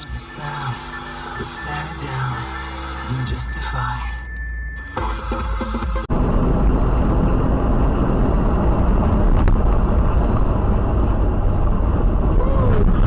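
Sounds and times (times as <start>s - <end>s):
music: 0.0s - 6.1s
car road and engine noise: 0.0s - 13.0s.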